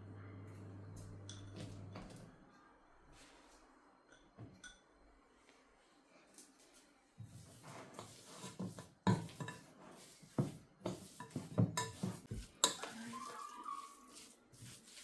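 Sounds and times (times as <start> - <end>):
dishes and cutlery clinking: 8.0 - 9.7, 10.4 - 13.0.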